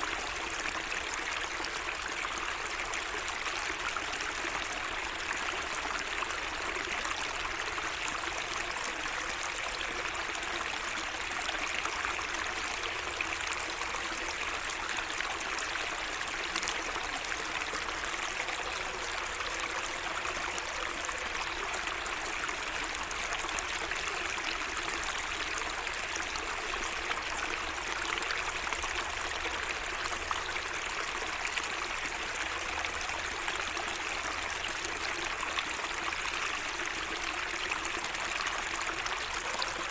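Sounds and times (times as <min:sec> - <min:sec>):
water running and trickling: 0:00.0 - 0:39.9.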